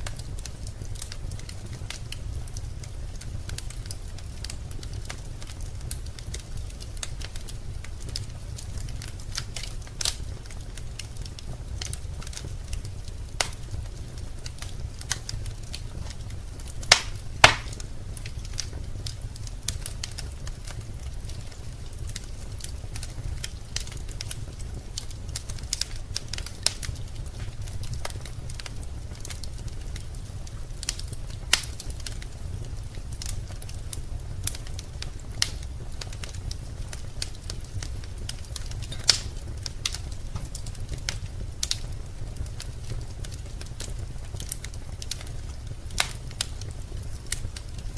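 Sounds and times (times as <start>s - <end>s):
loud fire pops: 0.0s - 47.9s
wood fire crackling and popping: 0.0s - 47.9s.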